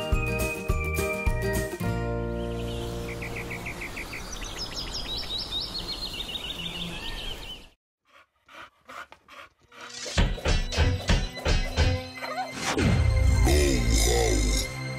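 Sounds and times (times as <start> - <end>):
bird chirps and trills: 2.3 - 7.8
dog panting: 8.0 - 10.1.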